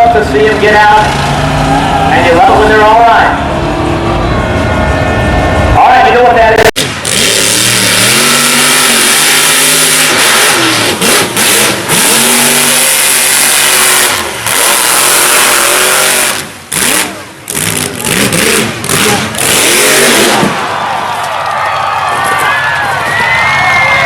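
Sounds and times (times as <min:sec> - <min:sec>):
truck engine revving hard: 0:00.0 - 0:05.8, 0:06.5 - 0:20.9.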